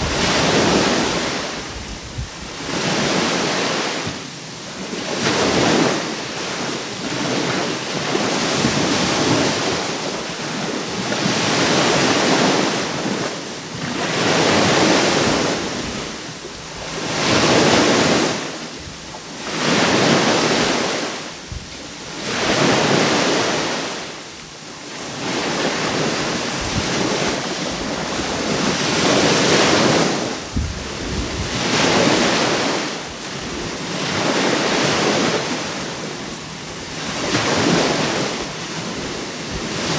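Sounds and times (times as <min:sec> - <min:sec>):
wind buffeting microphone: 0:00.0 - 0:03.2, 0:21.4 - 0:21.9, 0:25.8 - 0:35.6
small waves breaking on shore: 0:00.0 - 0:39.9.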